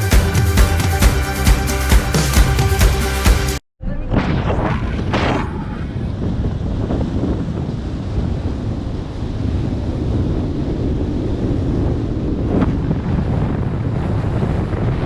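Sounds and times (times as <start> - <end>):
wind buffeting microphone: 3.9 - 15.0.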